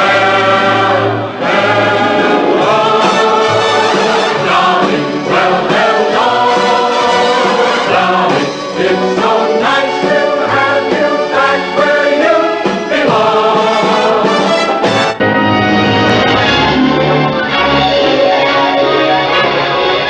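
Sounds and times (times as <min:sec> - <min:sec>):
choir singing held notes: 0:00.0 - 0:15.2
orchestra playing: 0:00.0 - 0:20.0.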